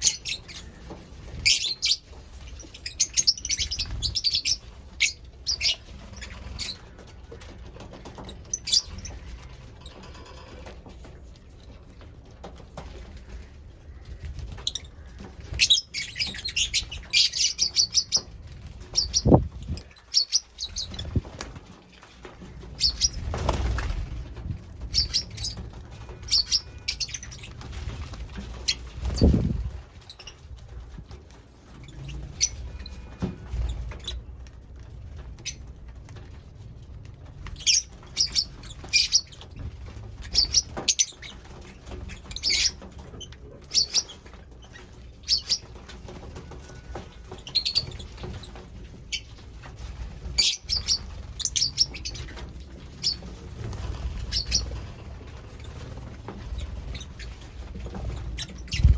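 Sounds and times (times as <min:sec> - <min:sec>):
lovebirds chirping: 0:00.0 - 0:07.5, 0:26.2 - 0:27.6, 0:50.4 - 0:52.4, 0:53.9 - 0:55.1.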